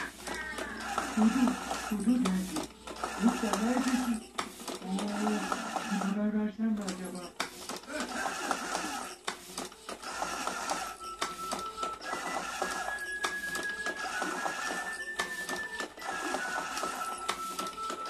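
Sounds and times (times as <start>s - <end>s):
motor whine: 0.0s - 4.3s.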